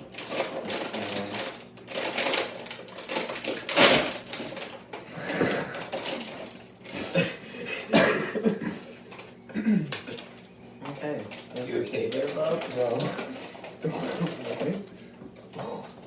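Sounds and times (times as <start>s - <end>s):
packaging rustling and crackling: 0.0s - 7.0s, 10.1s - 14.9s.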